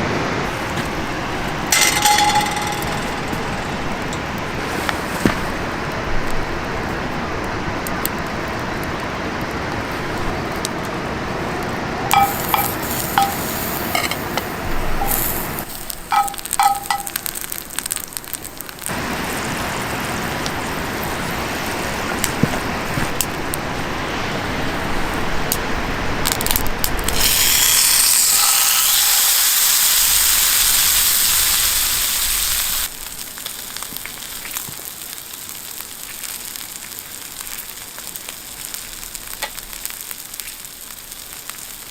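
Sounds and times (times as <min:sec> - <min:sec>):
utensil clinking against pan: 0:01.7 - 0:03.8, 0:12.1 - 0:15.4, 0:16.1 - 0:17.3
food sizzling in a pan: 0:12.1 - 0:22.5, 0:27.1 - 0:41.9.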